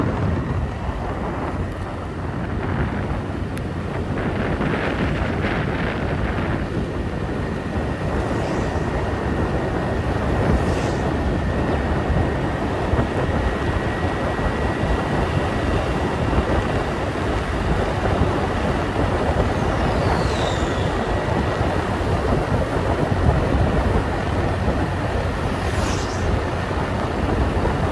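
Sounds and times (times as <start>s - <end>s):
wind rushing over microphone: 0.0s - 27.9s
thin steady high tone: 19.1s - 22.4s.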